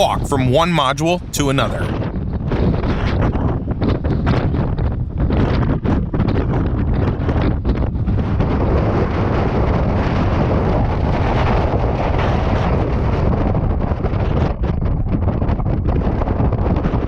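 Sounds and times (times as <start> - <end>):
strong wind blasting microphone: 4.6 - 10.0.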